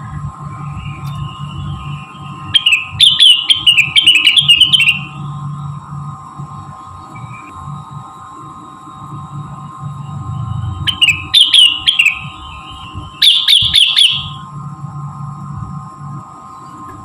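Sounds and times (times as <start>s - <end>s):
steady background hum: 0.0s - 17.0s
songbird chirping: 2.5s - 5.2s.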